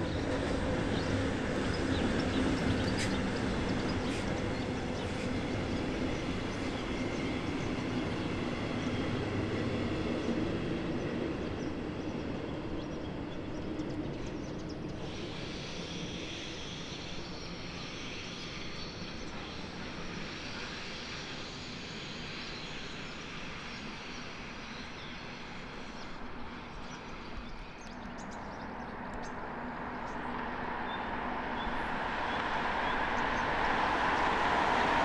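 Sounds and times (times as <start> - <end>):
train wheels rumbling on rail: 0.0 - 35.0
high hiss: 15.0 - 26.0.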